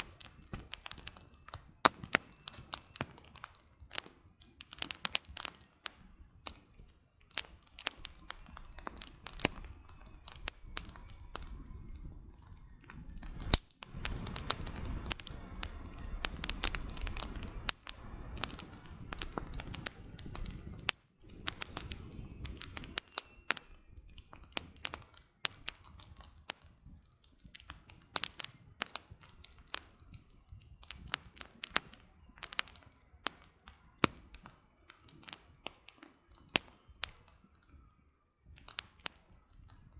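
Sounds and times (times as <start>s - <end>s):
campfire crackling and popping: 0.0s - 39.9s
low rushing noise: 9.0s - 23.0s.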